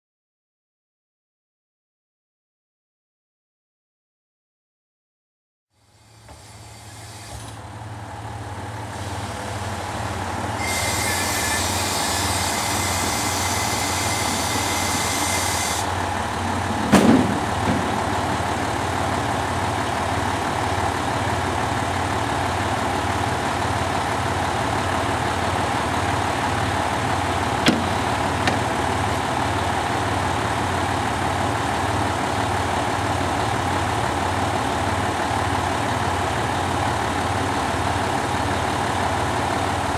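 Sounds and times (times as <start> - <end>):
diesel engine idling: 7.6 - 39.9
knock: 27.7 - 28.8.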